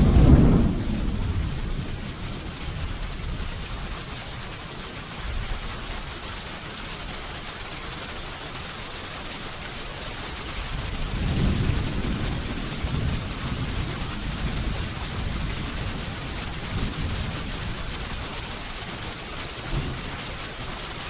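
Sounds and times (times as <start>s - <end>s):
thunder rumble: 0.0s - 3.6s, 11.0s - 18.2s
steady rain falling: 0.0s - 21.0s.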